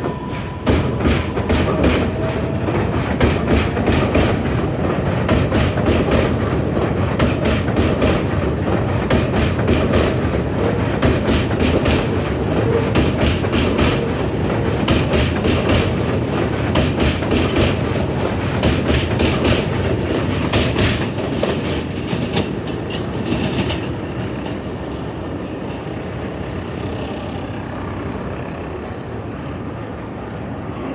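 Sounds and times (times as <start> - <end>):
train wheels clattering over rail joints: 0.0 - 25.1
subway train rumble: 0.0 - 30.9
high wheel squeal: 22.2 - 30.6.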